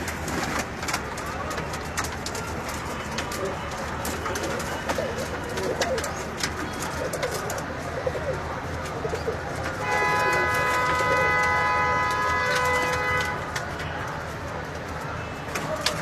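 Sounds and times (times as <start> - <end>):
pigeons cooing: 3.1 - 11.4.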